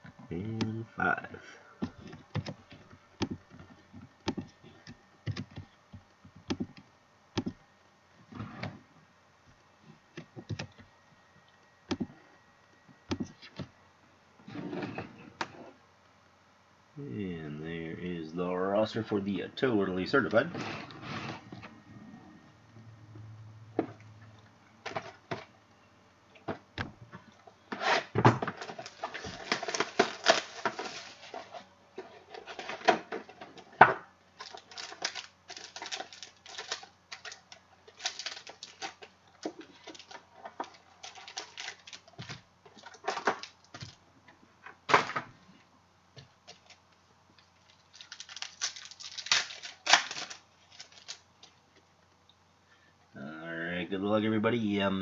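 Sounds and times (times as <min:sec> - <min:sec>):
crinkling wrapper and cardboard: 0:28.0 - 0:33.4, 0:34.4 - 0:44.0, 0:46.3 - 0:51.8.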